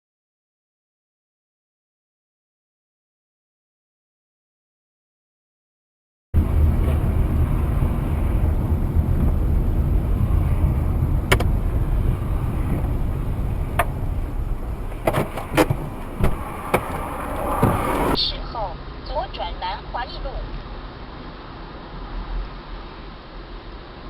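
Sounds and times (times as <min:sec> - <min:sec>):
car engine and road noise: 0:06.4 - 0:19.0, 0:20.2 - 0:24.0.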